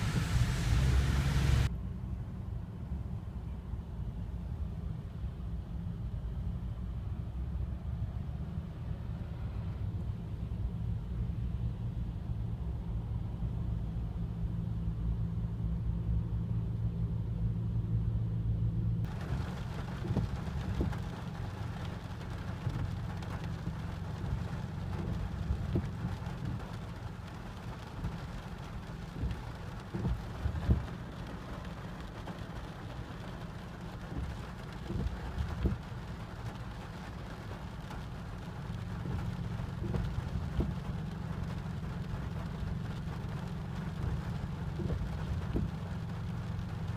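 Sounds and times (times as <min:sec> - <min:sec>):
rain hissing: 0:00.0 - 0:01.7, 0:19.1 - 0:46.9.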